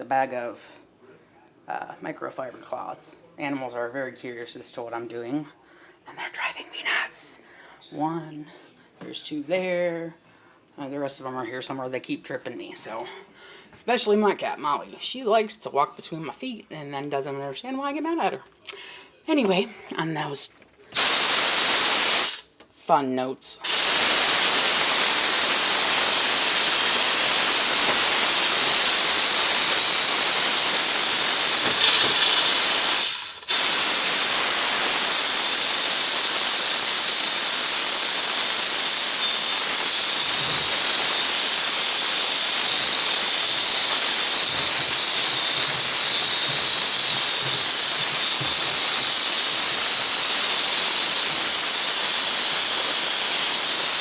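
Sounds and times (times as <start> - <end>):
steam cleaner hissing: 21.0 - 22.5, 23.6 - 54.0.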